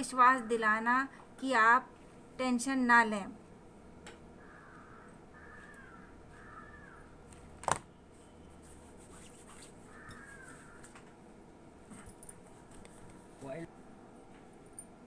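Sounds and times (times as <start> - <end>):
bird calling: 4.4 - 7.2, 9.9 - 11.0.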